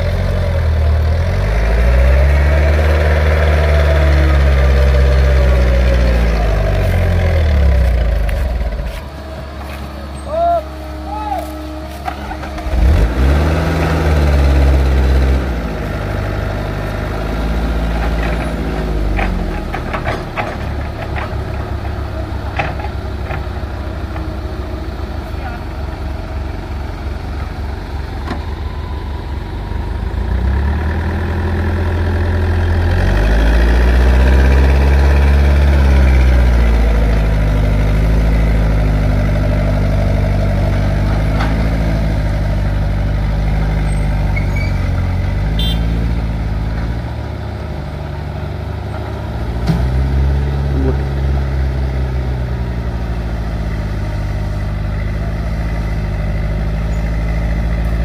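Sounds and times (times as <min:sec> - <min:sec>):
diesel engine under load: 0:00.0 - 0:58.0.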